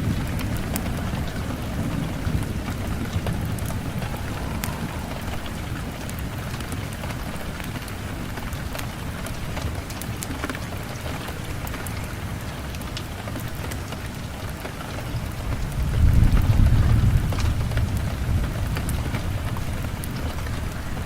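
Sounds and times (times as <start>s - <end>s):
low rumble: 0.0s - 7.6s
fire crackles and pops: 0.0s - 21.0s
steady rain: 0.0s - 21.0s.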